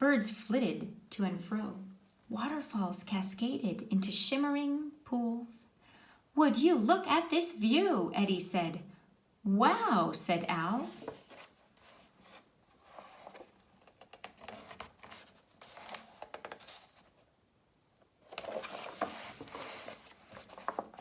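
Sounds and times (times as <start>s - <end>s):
page being turned: 10.8s - 17.3s, 18.2s - 21.0s
paper rustling and clicks: 13.2s - 17.0s, 18.3s - 21.0s.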